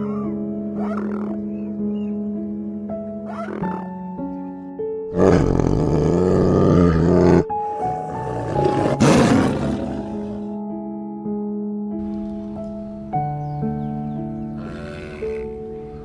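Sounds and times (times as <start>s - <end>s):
soft piano music: 0.0s - 16.0s
tiger roaring: 5.1s - 10.5s.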